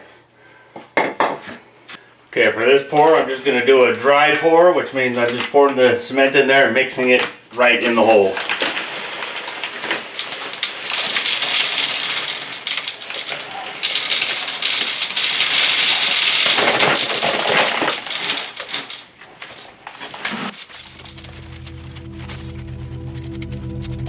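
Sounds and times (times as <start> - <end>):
dry concrete mix pouring: 7.0 - 24.0
music: 20.9 - 24.0.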